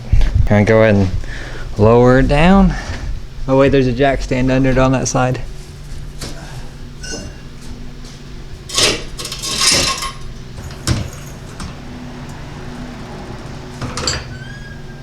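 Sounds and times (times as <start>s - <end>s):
jack stand clanking and scraping: 5.7s - 14.7s.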